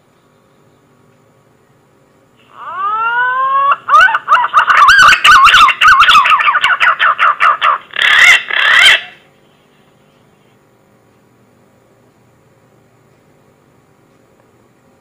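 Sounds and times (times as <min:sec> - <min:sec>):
pigeon whistling call: 0:02.6 - 0:09.2.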